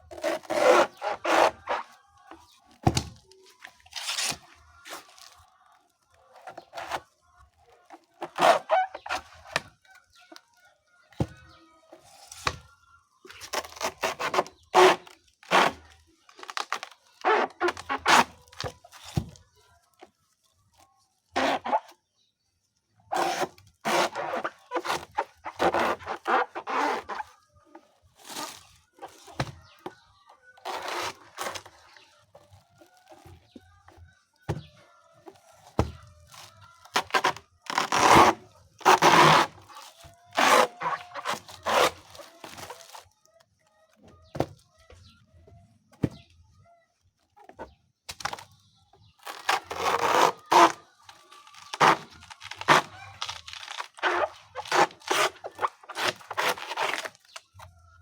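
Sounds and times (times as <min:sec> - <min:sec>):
blade chopping banana stem: 0:36.9 - 0:39.7.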